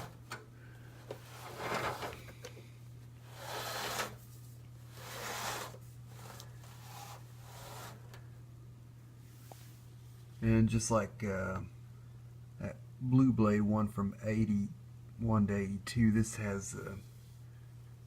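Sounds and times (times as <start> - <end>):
fan rubbing and scraping: 0.0 - 0.2, 1.1 - 2.3, 3.2 - 8.2
steady low hum: 0.0 - 18.0.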